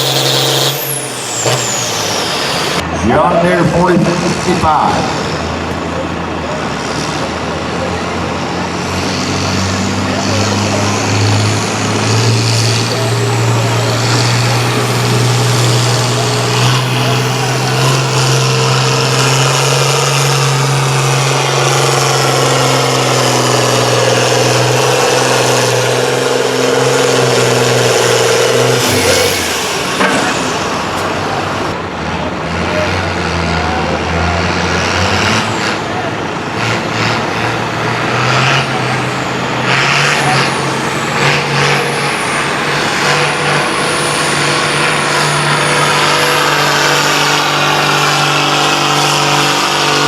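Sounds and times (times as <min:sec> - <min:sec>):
tractor diesel engine under load: 0:00.0 - 0:50.0.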